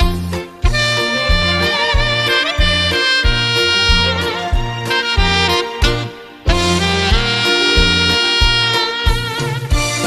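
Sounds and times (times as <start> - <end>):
backing track with bass beat: 0.0 - 10.0
saxophone melody: 0.0 - 10.0.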